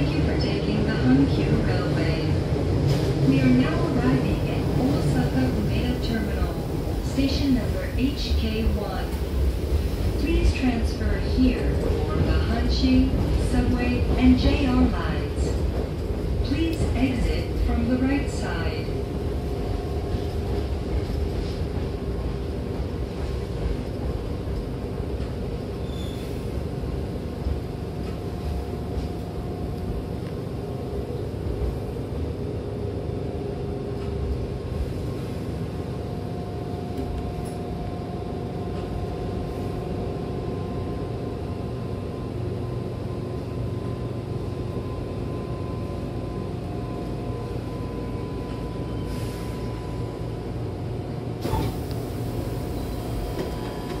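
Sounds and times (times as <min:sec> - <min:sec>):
train rumbling: 0:00.0 - 0:54.0
sliding doors opening hiss: 0:51.4 - 0:53.8.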